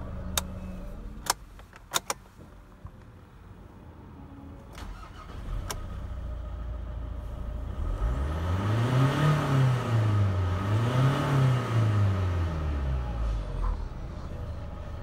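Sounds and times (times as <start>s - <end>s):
diesel engine running and revving: 5.4s - 15.0s.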